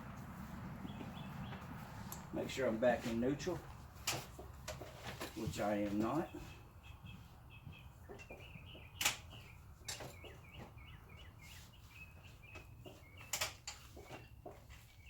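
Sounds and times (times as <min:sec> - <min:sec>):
small bird chirping: 0:06.2 - 0:13.4.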